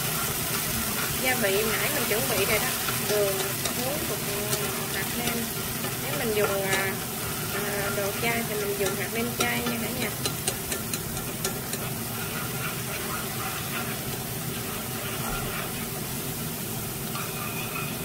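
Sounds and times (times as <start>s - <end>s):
scallions sizzling in hot oil: 0.0s - 18.0s
utensil clicking against pan: 1.6s - 12.0s.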